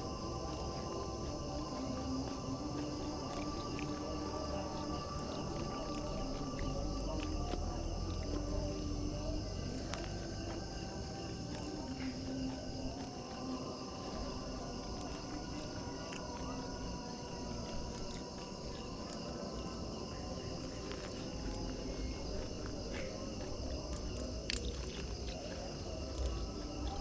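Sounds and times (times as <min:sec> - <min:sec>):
night insects chirring: 0:00.0 - 0:27.0.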